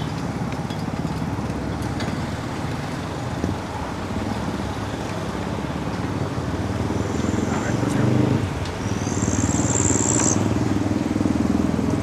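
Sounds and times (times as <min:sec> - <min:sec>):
vehicle engines running: 0:00.0 - 0:12.0.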